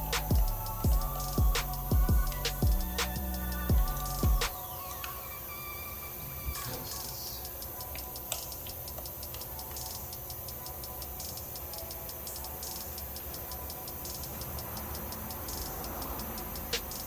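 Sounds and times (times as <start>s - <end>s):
socket ratchet clicking: 7.4s - 17.0s.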